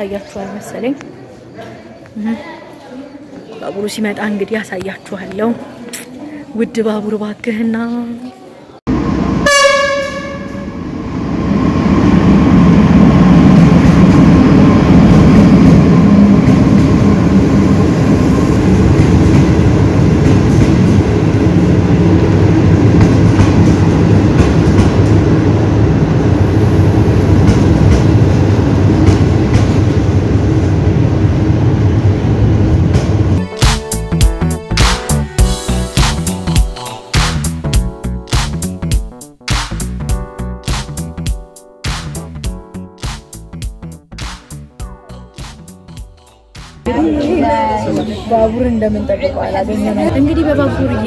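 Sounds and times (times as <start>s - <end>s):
train rumbling past: 8.9s - 36.6s
train horn blast: 9.4s - 10.9s.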